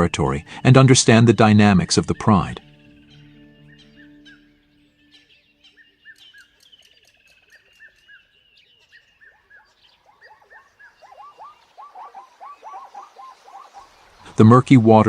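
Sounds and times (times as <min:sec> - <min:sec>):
birds chirping: 0:00.0 - 0:15.0
fast lower bird chirps: 0:00.0 - 0:15.0.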